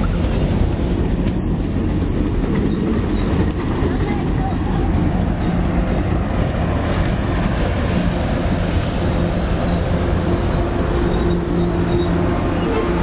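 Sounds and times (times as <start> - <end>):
train wheels rumbling on rail: 0.0 - 13.0
high wheel squeal: 1.2 - 6.2, 8.9 - 13.0.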